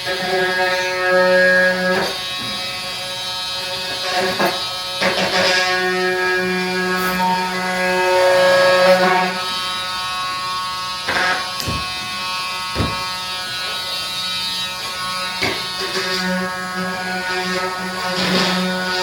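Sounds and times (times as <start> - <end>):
steady electric buzz: 0.0 - 19.0
short knocks: 12.8 - 13.1.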